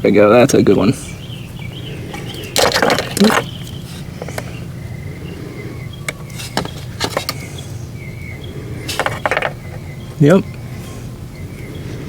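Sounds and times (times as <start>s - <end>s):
faint chirping: 0.0s - 12.0s
low outdoor background: 0.0s - 12.0s
handling rustle: 2.1s - 4.7s, 6.1s - 7.6s, 8.9s - 9.8s.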